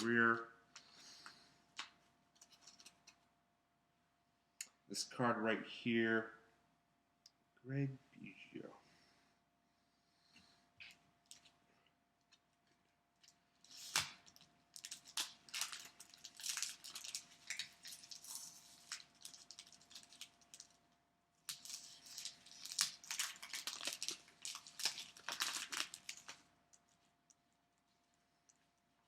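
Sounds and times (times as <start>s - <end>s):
wrapper tearing and crinkling: 13.6s - 20.8s, 21.5s - 26.4s.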